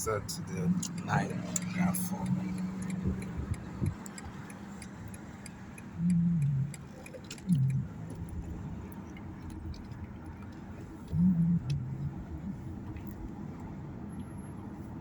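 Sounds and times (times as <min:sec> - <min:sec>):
faint ticking: 0:00.0 - 0:12.2
car cabin road noise: 0:00.0 - 0:15.0
person humming: 0:06.0 - 0:06.8.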